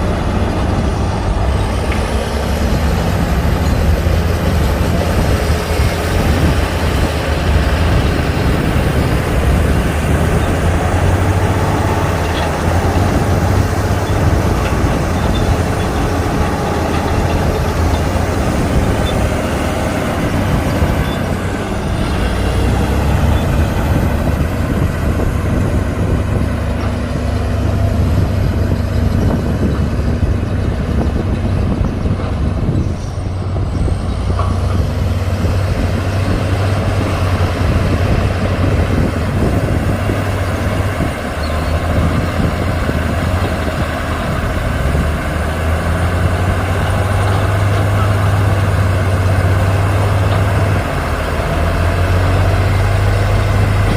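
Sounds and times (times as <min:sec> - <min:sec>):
heavy diesel engines droning: 0:00.0 - 0:53.9.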